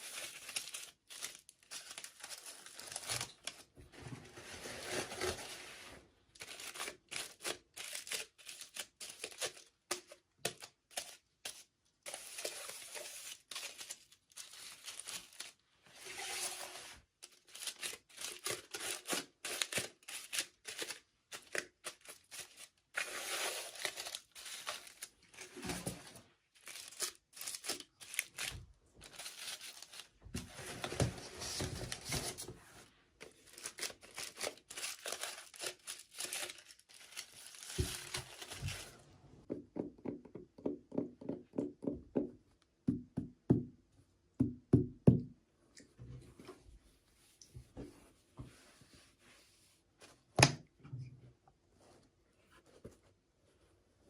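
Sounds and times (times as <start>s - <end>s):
packaging tearing and crinkling: 33.2s - 39.0s.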